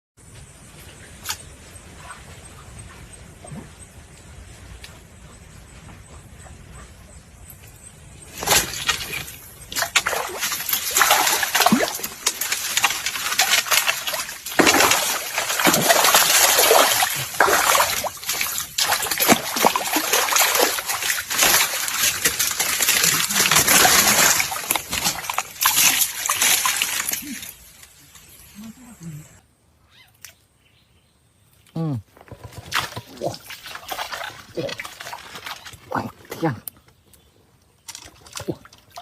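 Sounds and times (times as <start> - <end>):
fish thrashing and splashing: 8.3 - 27.8, 32.5 - 36.0.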